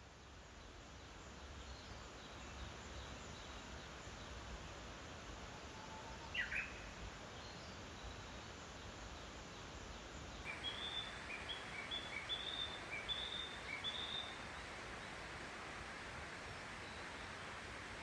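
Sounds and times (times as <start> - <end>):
faint outdoor hiss: 0.0 - 18.0
bird chirping: 10.4 - 14.6.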